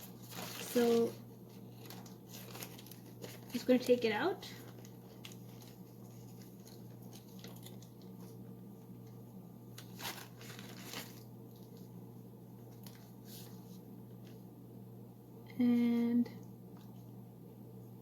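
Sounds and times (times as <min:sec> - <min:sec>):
packaging crinkling and rustling: 0:00.0 - 0:14.4
steady low hum: 0:00.0 - 0:18.0.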